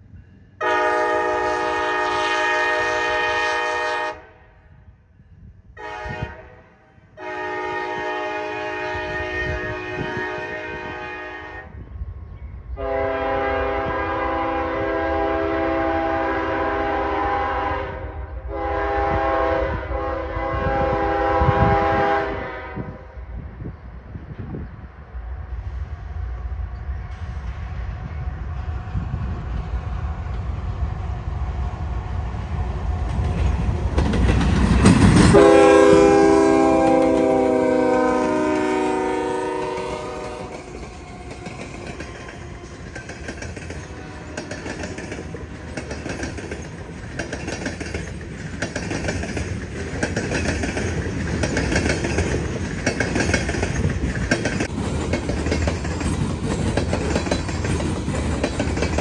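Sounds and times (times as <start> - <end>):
diesel locomotives passing: 0.0 - 59.0
train air horn: 0.6 - 4.7, 5.8 - 11.9, 12.8 - 23.3, 35.3 - 43.2, 43.8 - 46.1
wheels clacking over rail joints: 33.0 - 35.6, 39.5 - 59.0.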